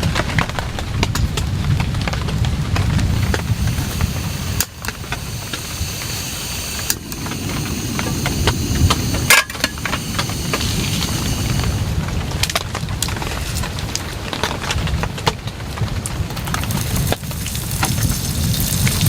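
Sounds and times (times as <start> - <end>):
loud sharp crack: 0.0 - 11.8
deep low rumble: 0.0 - 14.0
heavy rain falling: 0.0 - 19.0
rain drop taps: 0.0 - 19.0.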